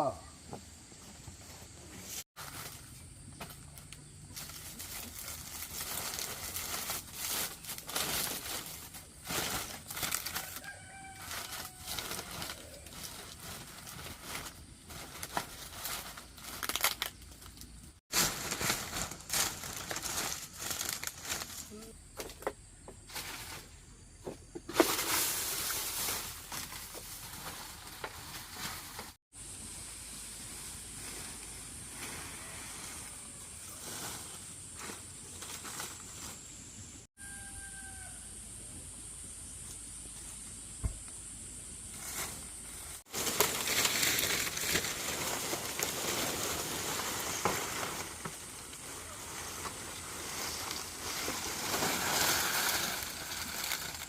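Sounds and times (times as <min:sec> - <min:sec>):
crinkling and rustling: 0:01.4 - 0:22.4, 0:24.6 - 0:29.2, 0:42.0 - 0:54.0.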